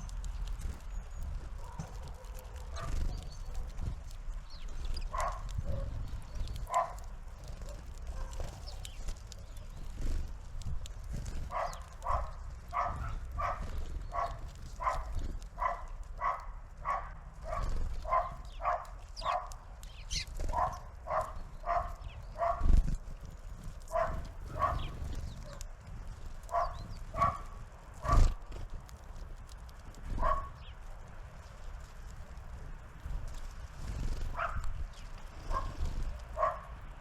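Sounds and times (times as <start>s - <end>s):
animal calling: 11.4s - 22.7s, 23.9s - 25.6s.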